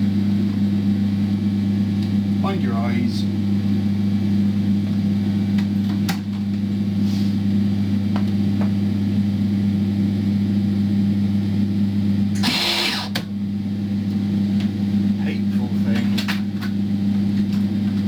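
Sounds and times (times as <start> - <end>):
welder humming: 11.1 - 16.0.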